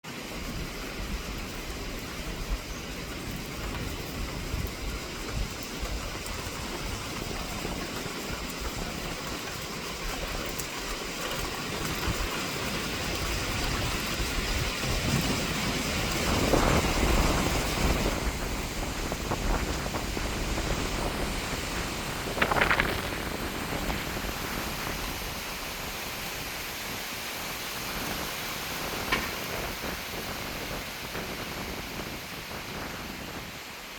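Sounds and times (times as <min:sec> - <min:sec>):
strong wind through trees: 0:00.0 - 0:33.9
tree cracking: 0:22.3 - 0:23.5.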